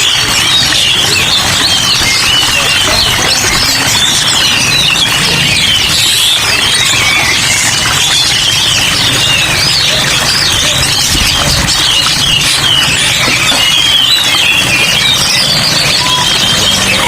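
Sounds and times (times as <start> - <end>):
rain falling: 0.0 - 17.0
songbirds chirping and warbling: 0.0 - 17.0.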